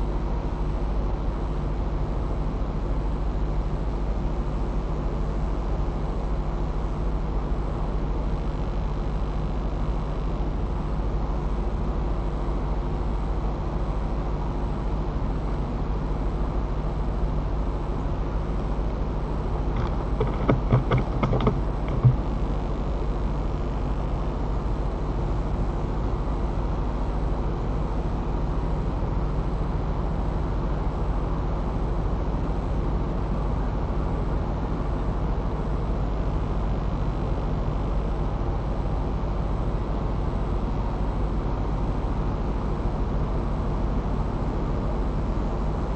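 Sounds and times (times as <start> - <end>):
tree branches creaking: 19.7 - 22.3.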